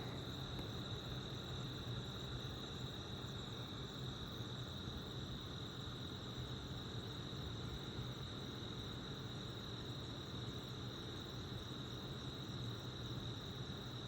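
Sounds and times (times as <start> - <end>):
low steady hum: 0.0 - 1.6
crickets trilling: 0.0 - 14.0.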